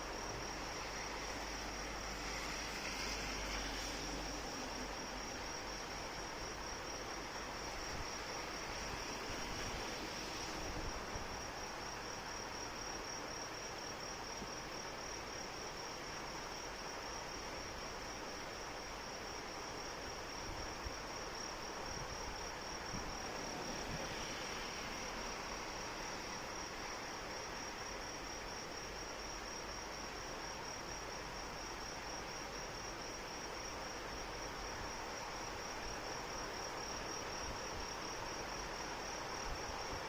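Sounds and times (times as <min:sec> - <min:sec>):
crickets chirping: 0:00.0 - 0:40.0.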